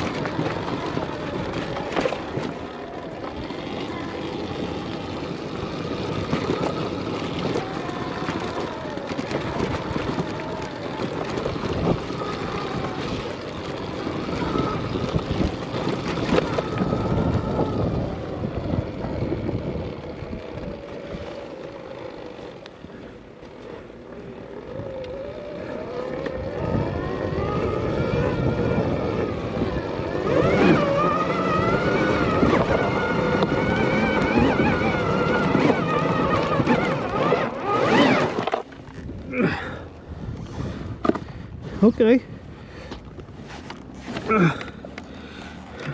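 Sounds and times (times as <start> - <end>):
electric motorbike motor whining: 0.0 - 45.9
tyres rolling on trail: 0.0 - 45.9.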